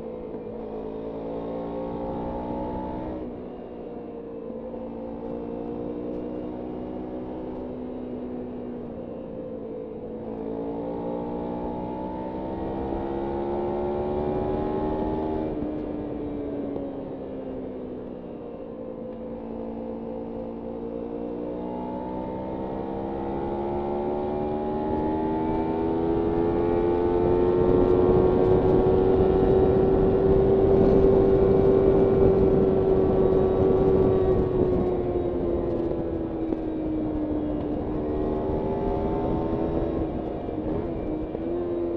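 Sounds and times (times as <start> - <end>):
motorcycle engine revving: 10.2 - 15.9, 19.4 - 41.9.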